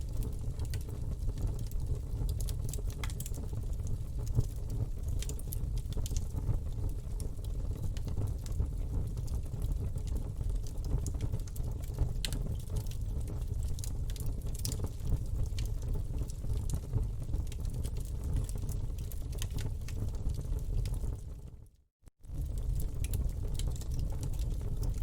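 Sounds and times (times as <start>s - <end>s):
wood crackling and popping: 0.0s - 21.5s, 22.3s - 25.0s
low rush of flame: 22.2s - 25.0s.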